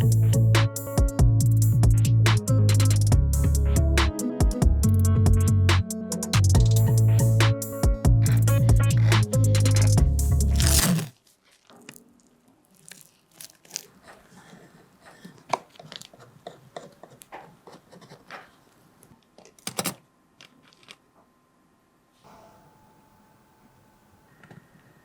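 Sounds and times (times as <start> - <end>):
background music: 0.0 - 10.8.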